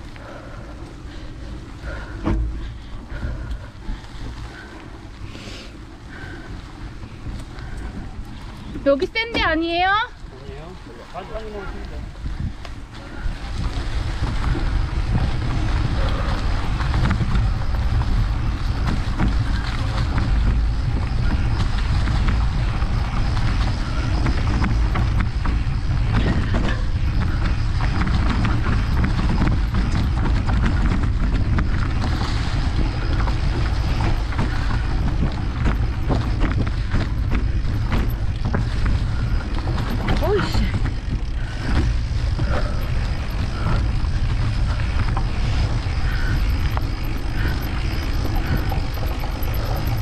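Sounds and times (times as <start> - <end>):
wind buffeting microphone: 0.0 - 50.0
bike knocks and rattles: 1.8 - 3.5, 12.2 - 50.0.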